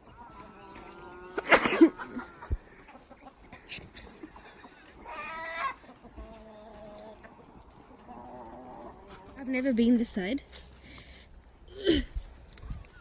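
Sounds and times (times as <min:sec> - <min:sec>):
chicken drawn-out call: 0:00.0 - 0:09.5
chicken squawking: 0:05.0 - 0:07.2.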